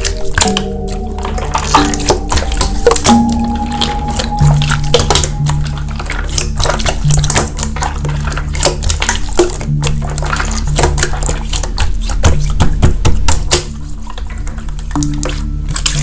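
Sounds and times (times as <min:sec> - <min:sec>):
background music: 0:00.0 - 0:08.4.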